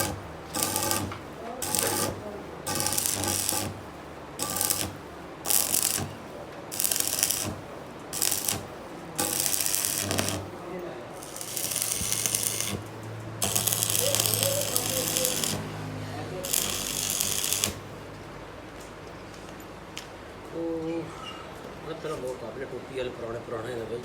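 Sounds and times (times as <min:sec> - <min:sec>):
tool rasping on metal: 0:00.0 - 0:03.8, 0:09.2 - 0:10.4.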